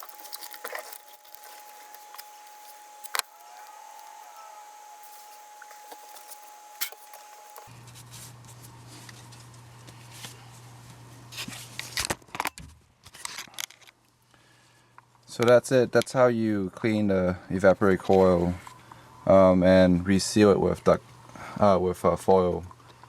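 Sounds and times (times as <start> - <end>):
foil tape crackling and clicking: 0.0 - 7.7
steady low hum: 0.0 - 11.4.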